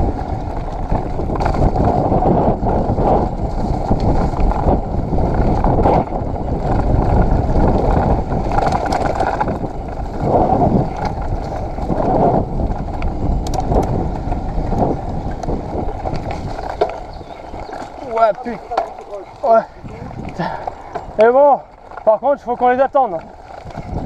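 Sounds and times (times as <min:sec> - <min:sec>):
bike knocking and rattling: 0:00.0 - 0:24.0
bike tyre noise: 0:00.0 - 0:24.0
wind rushing over microphone: 0:00.0 - 0:24.0.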